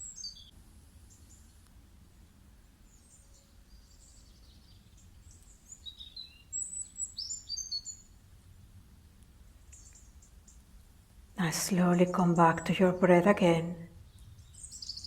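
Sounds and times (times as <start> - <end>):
bird chirps and trills: 0.0 - 0.5, 2.9 - 8.1, 11.9 - 15.0
faint steady background noise: 0.0 - 15.0.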